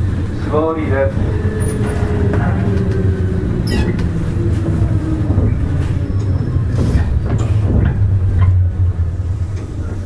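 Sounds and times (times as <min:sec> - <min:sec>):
train motors and wheels rumbling: 0:00.0 - 0:10.0
brief high squeak: 0:03.7 - 0:04.0.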